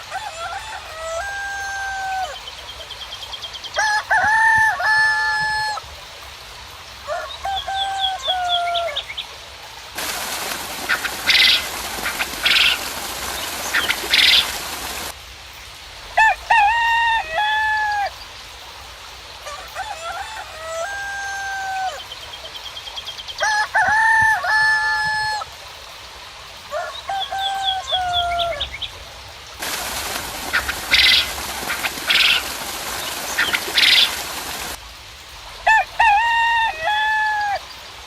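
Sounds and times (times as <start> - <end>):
roosters crowing: 0.0 - 2.4, 3.8 - 5.8, 7.1 - 9.0, 10.0 - 15.1, 16.2 - 18.2, 19.4 - 22.0, 23.4 - 25.5, 26.7 - 28.7, 29.6 - 34.8, 35.7 - 37.6
small birds chirping: 10.0 - 15.1, 29.6 - 34.8
loud hiss: 10.0 - 15.2, 29.6 - 34.9.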